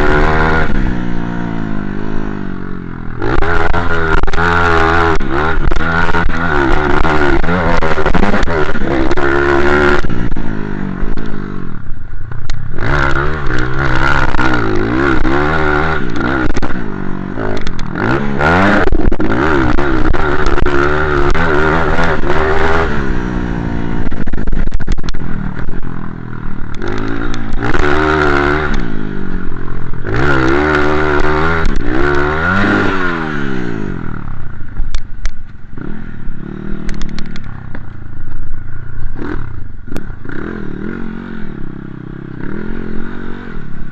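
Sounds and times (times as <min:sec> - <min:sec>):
motorbike engine revving: 0:00.0 - 0:43.9.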